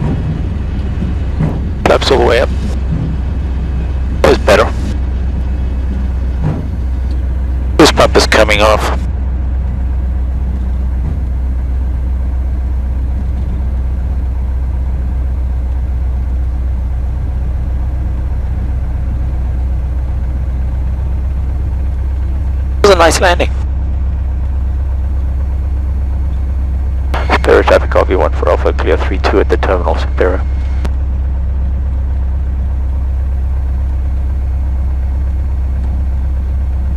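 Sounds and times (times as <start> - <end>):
propeller plane engine droning: 0.0 - 36.9.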